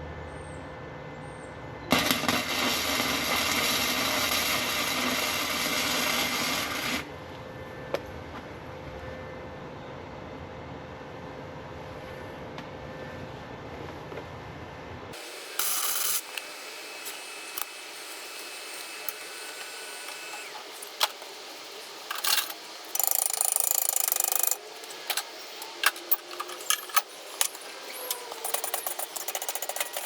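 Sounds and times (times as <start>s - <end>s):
sharp welding pops: 1.9s - 7.1s, 15.2s - 30.0s
welder arc crackling: 1.9s - 7.1s, 15.2s - 30.0s.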